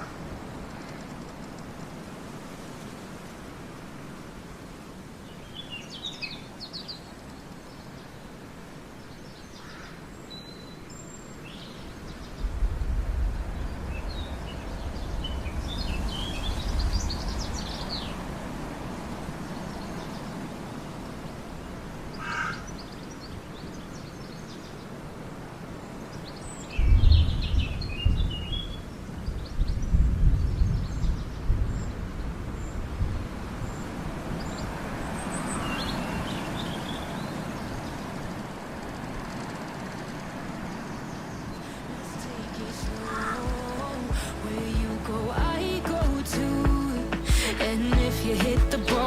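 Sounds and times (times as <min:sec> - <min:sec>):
outdoor background noise: 0:00.0 - 0:49.0
wild birds chirping: 0:00.0 - 0:49.0
low rumble: 0:41.9 - 0:48.9.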